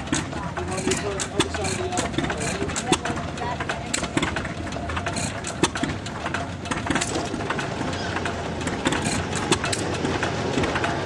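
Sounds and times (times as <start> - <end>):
engine running steadily: 0.0 - 11.0
irregular sharp clicks and knocks: 0.0 - 11.0.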